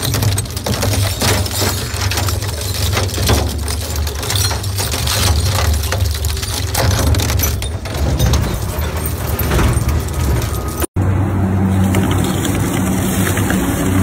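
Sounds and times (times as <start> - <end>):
scrap cracking and crunching: 0.0 - 10.9.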